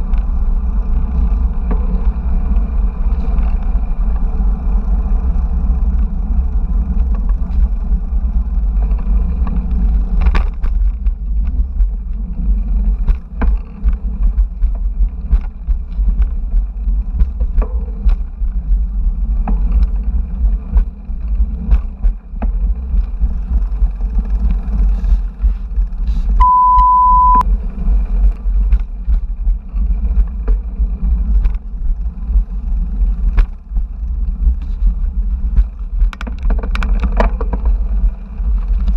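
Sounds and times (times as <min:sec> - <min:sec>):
road rumble: 0:00.0 - 0:38.9
steady beep: 0:26.4 - 0:27.4
wind buffeting microphone: 0:27.5 - 0:38.9
clicks and rattles: 0:36.0 - 0:38.0.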